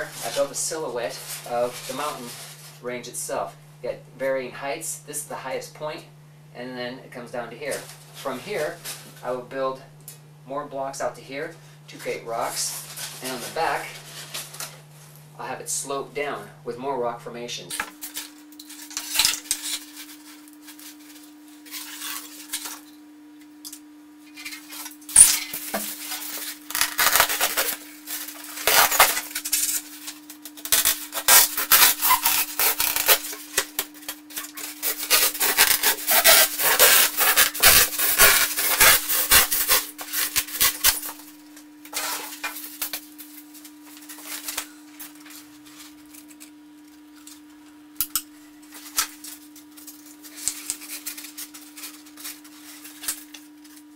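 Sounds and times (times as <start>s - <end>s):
styrofoam scraping and rubbing: 18.7s - 22.9s, 24.3s - 41.3s.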